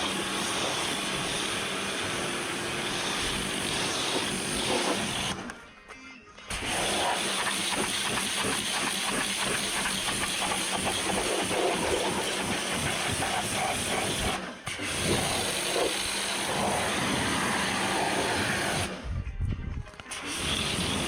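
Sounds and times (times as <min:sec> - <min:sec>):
pressure washer jet hissing: 0:00.0 - 0:05.4, 0:06.5 - 0:19.0, 0:20.1 - 0:21.0.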